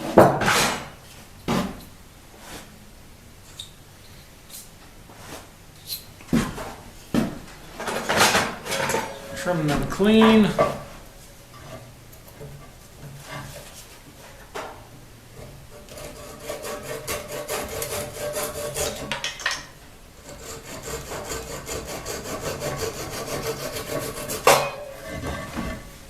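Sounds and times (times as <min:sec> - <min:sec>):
hand tool scraping wood: 0:07.7 - 0:14.5, 0:15.4 - 0:19.2, 0:20.2 - 0:26.0.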